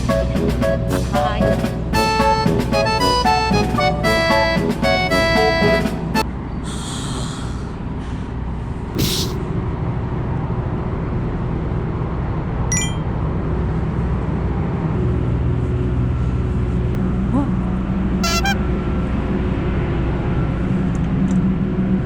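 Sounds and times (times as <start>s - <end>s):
background music: 0.0s - 6.2s
large vehicle engine rumble: 0.0s - 22.0s
air hisses: 9.0s - 9.4s
brief high tone: 12.7s - 13.2s, 18.2s - 18.6s.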